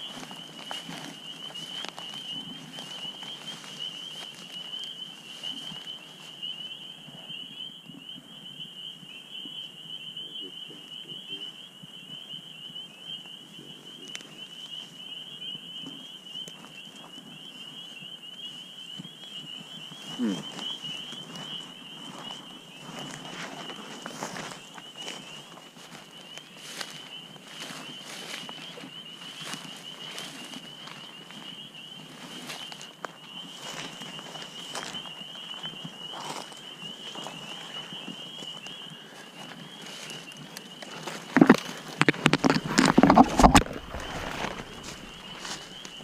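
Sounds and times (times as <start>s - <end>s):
rustling: 0.0s - 6.0s, 39.8s - 46.0s
soft footsteps: 0.0s - 6.3s, 32.1s - 46.0s
insects trilling: 0.0s - 46.0s.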